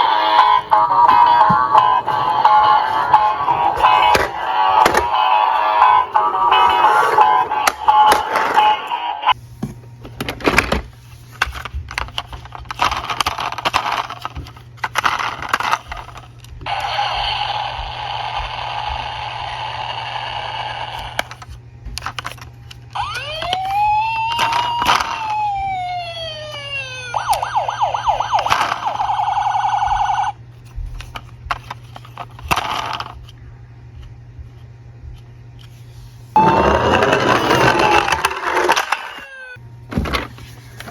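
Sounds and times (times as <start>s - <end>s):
toy cars clattering: 0.0s - 9.0s, 11.4s - 16.3s, 21.0s - 25.6s, 28.3s - 30.2s, 31.0s - 33.3s, 36.4s - 40.9s
toy electronic siren: 0.0s - 9.4s, 16.7s - 21.2s, 23.0s - 30.4s, 36.4s - 39.6s.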